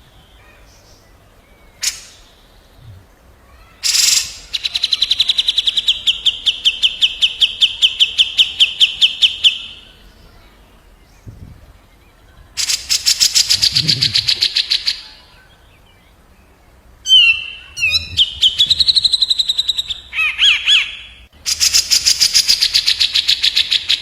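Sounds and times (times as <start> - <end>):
songbird whistled trill: 17.0 - 24.0.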